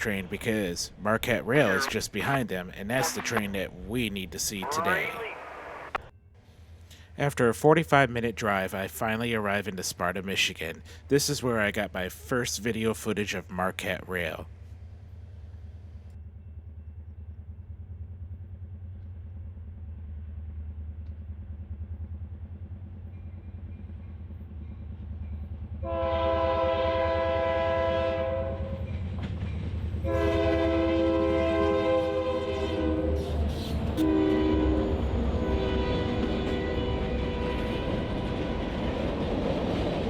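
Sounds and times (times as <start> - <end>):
locomotive engine rumble: 0.0 - 40.0
train horn blasts: 25.8 - 28.8, 30.0 - 33.4, 34.0 - 38.9.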